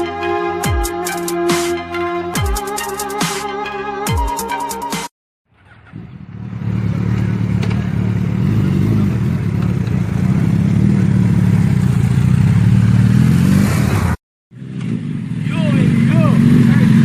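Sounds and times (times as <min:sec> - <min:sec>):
motorcycle engine droning: 0:05.5 - 0:17.0.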